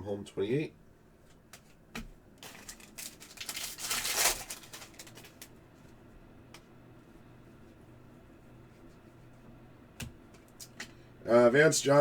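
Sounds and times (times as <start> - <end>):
foil wrapper crinkling: 2.4 - 5.6.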